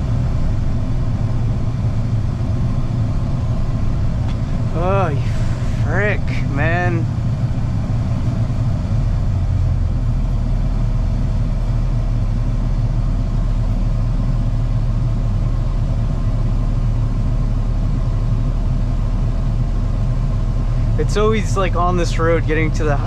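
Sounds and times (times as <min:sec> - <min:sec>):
engine and road hum in cab: 0:00.0 - 0:23.0.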